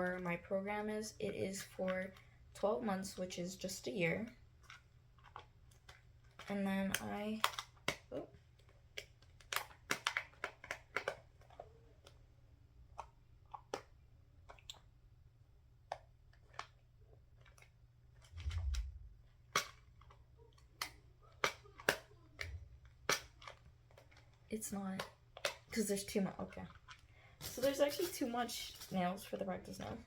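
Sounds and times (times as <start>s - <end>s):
plastic clicks and taps: 19.5s - 24.3s.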